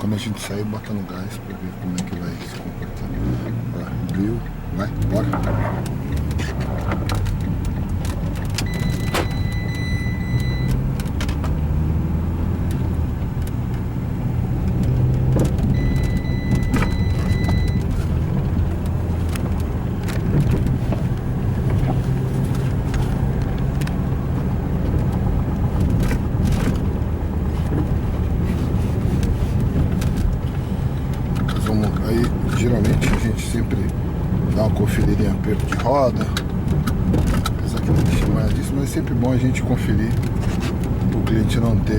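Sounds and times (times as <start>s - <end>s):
car engine revving through gears: 0.0s - 41.9s
road noise inside car: 0.0s - 41.9s
steady high beep: 8.7s - 10.7s, 15.8s - 17.8s.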